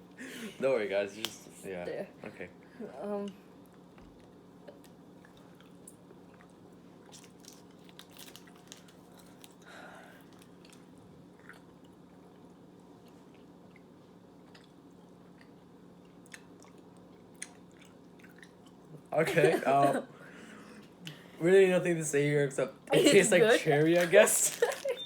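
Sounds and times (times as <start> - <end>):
steady low hum: 0.0 - 25.0
chewing mouth clicks and smacks: 3.7 - 9.6, 10.3 - 18.9.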